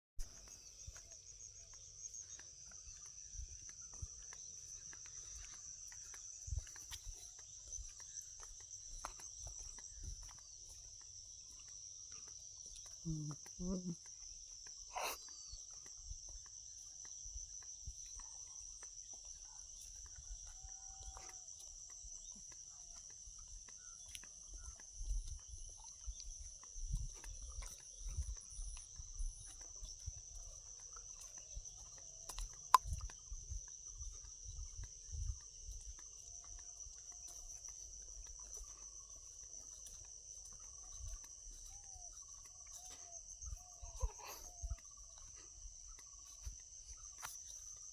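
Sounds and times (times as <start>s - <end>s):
crickets chirping: 0.2s - 47.9s.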